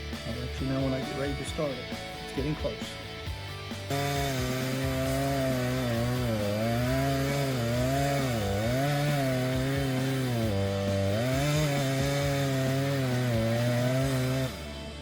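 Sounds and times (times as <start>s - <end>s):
chainsaw engine running: 3.7s - 15.0s.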